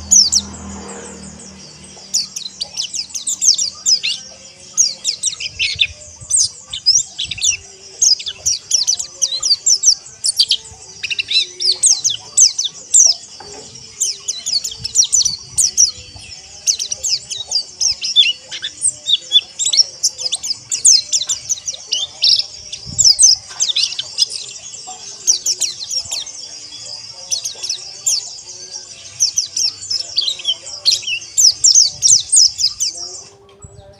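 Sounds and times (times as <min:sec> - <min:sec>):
flock of birds chirping: 0:00.0 - 0:33.9.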